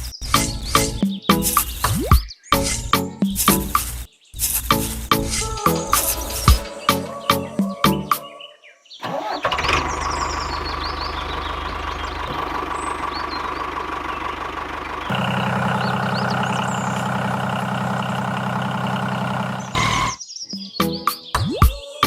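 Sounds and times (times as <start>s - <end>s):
birds chirping faintly: 0.0s - 9.1s, 9.7s - 22.0s
small motor running: 15.1s - 20.2s.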